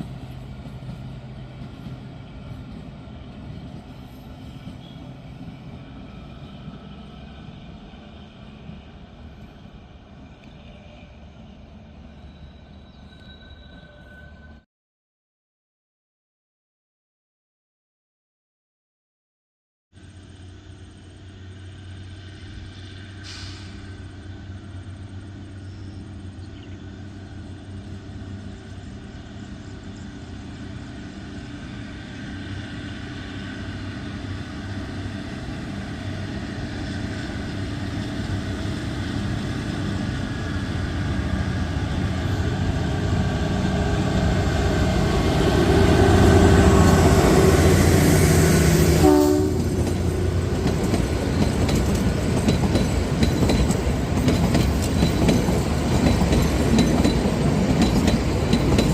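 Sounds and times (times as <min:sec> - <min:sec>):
train engine humming: 0:00.0 - 0:14.6, 0:20.0 - 0:58.9
train horn note: 0:45.5 - 0:49.9.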